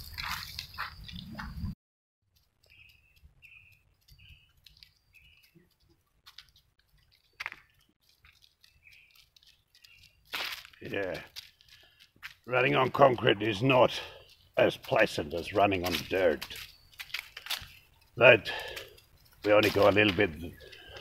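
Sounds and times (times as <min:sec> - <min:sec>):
bird chirping faintly: 0:02.6 - 0:06.0.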